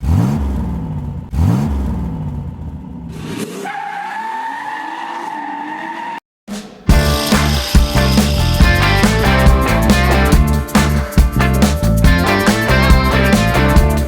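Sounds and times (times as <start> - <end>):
car engine revving: 0.0 - 3.9
tire squeal: 3.1 - 6.2.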